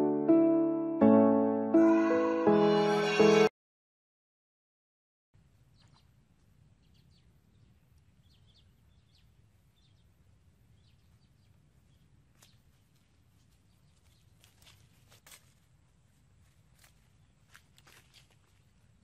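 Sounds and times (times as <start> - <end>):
small birds chirping: 5.6 - 15.1, 16.8 - 18.4.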